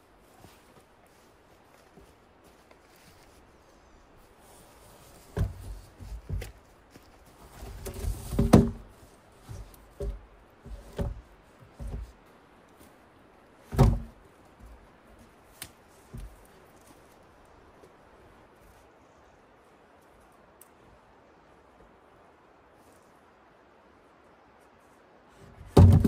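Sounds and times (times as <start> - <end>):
heavy thuds and knocks: 5.3 - 6.6, 7.7 - 12.2, 13.7 - 14.2, 25.6 - 26.0.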